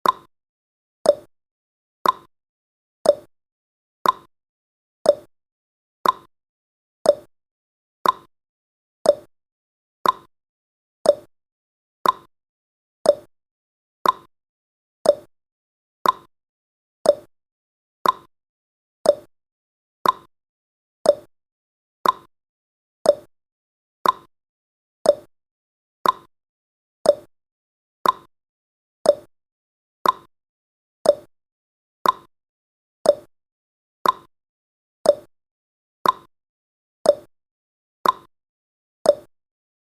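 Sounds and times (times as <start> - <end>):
clock ticking: 2.0 - 2.3, 4.0 - 4.3, 6.0 - 6.3, 8.0 - 8.3, 10.0 - 10.3, 12.0 - 12.3, 14.0 - 14.3, 15.1 - 15.3, 16.0 - 16.3, 17.1 - 17.3, 18.0 - 18.3, 19.1 - 19.3, 20.0 - 20.3, 21.1 - 21.3, 22.0 - 22.3, 24.0 - 24.3, 26.0 - 26.3, 28.0 - 28.3, 29.1 - 29.3, 30.0 - 30.3, 31.1 - 31.3, 32.0 - 32.3, 33.1 - 33.3, 34.0 - 34.3, 35.1 - 35.3, 36.0 - 36.3, 38.0 - 38.3, 39.1 - 39.3.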